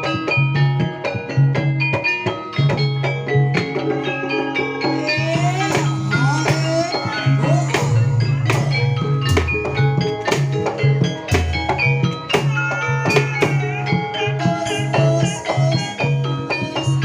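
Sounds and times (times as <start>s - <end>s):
drums beating steady rhythm: 0.0s - 17.0s
ringing metallophone tones: 0.0s - 17.0s
deep drum strokes: 5.1s - 12.0s.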